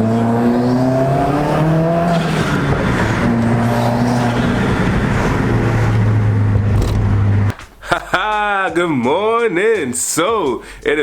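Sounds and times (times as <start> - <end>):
car engine at high revs: 0.0 - 7.5
exhaust and road noise: 0.0 - 7.6.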